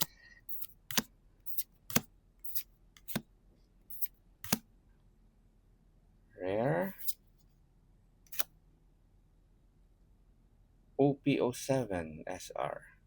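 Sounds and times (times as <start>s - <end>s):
trading cards snapping: 0.0s - 3.2s, 3.9s - 4.6s.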